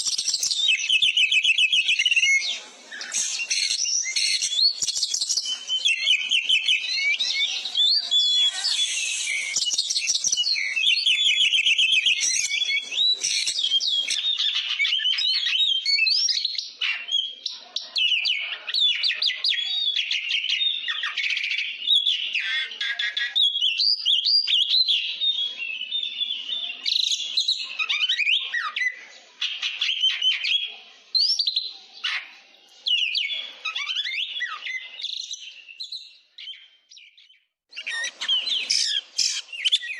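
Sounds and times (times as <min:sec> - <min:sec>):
songbird singing whistles and trills: 0:00.0 - 0:39.9.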